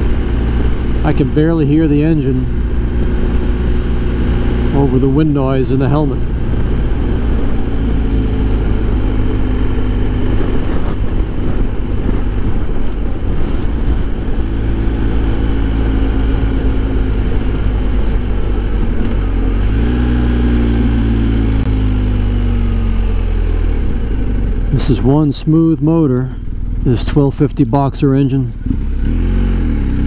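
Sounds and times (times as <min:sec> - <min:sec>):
motorcycle engine hum: 0:00.0 - 0:30.0
wind rushing inside helmet: 0:06.0 - 0:22.4.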